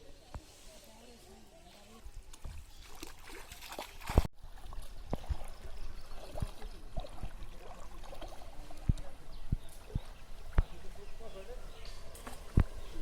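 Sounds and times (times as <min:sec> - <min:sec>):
water trickling and splashing: 0:01.7 - 0:11.6.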